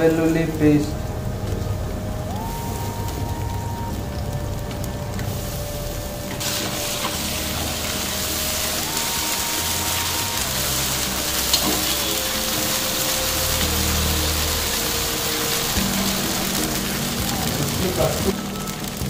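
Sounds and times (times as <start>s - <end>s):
onions sizzling in oil: 0.0s - 19.0s
soft background music: 0.0s - 19.0s.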